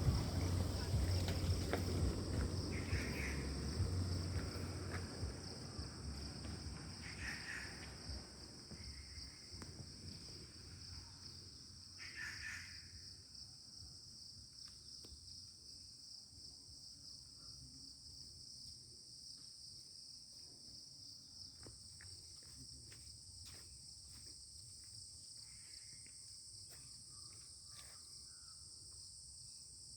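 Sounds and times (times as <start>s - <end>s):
low rumble: 0.0s - 7.0s
high-pitched insect chorus: 0.0s - 29.9s.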